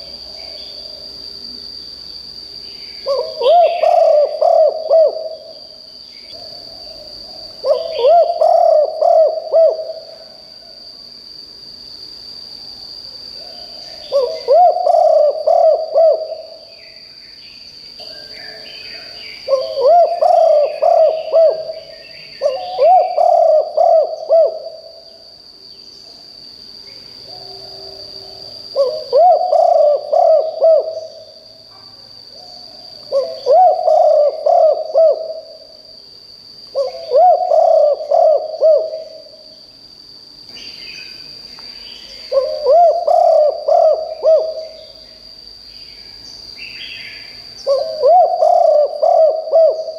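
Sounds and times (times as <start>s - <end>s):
dove cooing: 3.0s - 5.6s, 6.4s - 10.4s, 13.4s - 16.7s, 19.5s - 25.0s, 27.3s - 31.3s, 33.1s - 35.6s, 36.7s - 39.4s, 42.2s - 45.0s, 47.6s - 49.9s
faint bird chirps: 13.4s - 26.1s.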